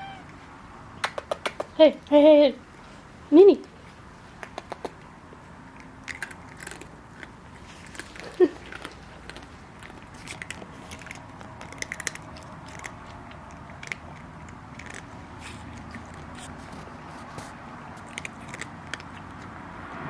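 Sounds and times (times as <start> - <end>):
chewing crunchy food: 3.6 - 19.6.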